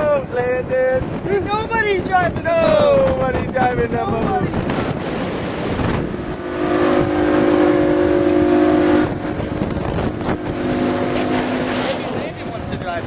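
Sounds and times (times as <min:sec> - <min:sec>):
rush of wind and water: 0:00.0 - 0:13.0
motorboat engine running: 0:04.4 - 0:13.0.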